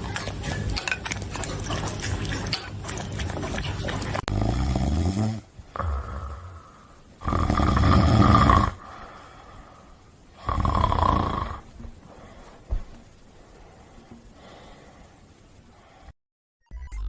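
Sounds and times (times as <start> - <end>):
dog snoring loudly: 4.2 - 6.5, 7.2 - 8.8, 10.4 - 11.7.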